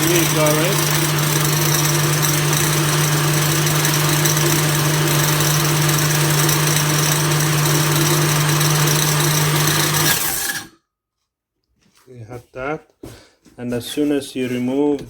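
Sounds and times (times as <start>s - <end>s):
blender motor running: 0.0s - 10.7s.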